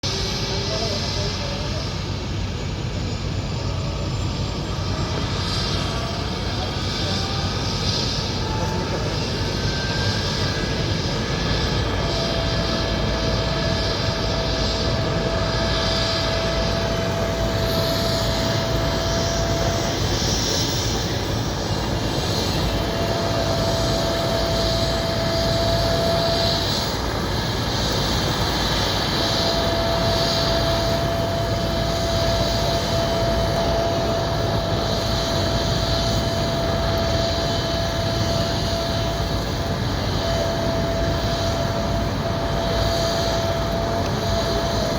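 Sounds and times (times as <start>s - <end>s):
helicopter engine and rotor: 0.0s - 44.9s.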